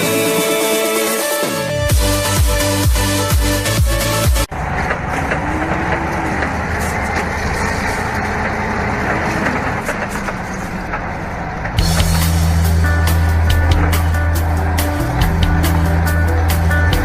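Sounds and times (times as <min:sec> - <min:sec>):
heavy machine engine running: 0:04.2 - 0:17.0.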